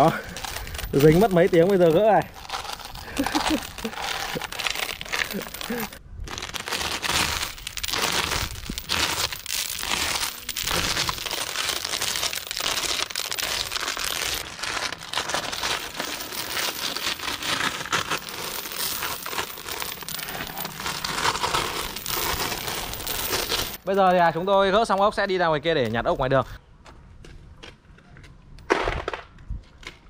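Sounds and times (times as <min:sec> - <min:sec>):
crinkling rustling noise: 0:00.0 - 0:24.1.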